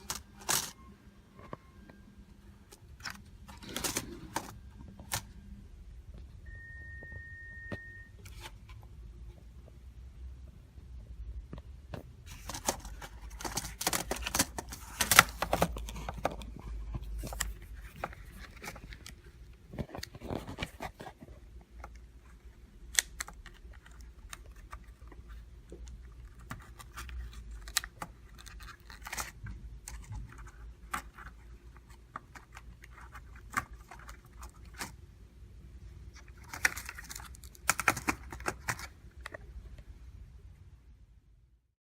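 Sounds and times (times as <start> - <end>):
plastic clicks and scrapes of laptop: 0.0 - 0.8, 2.7 - 5.4, 11.9 - 35.0, 36.1 - 39.5
faint steady hum: 0.0 - 41.7.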